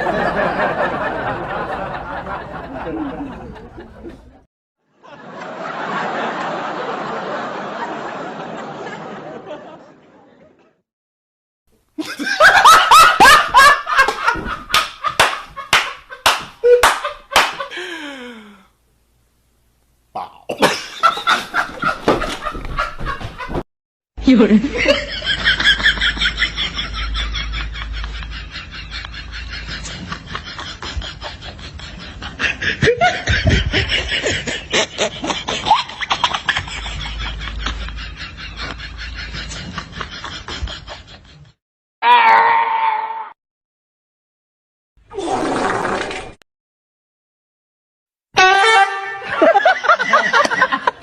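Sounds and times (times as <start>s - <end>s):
person laughing: 12.0s - 15.8s, 16.6s - 18.6s, 24.3s - 41.5s.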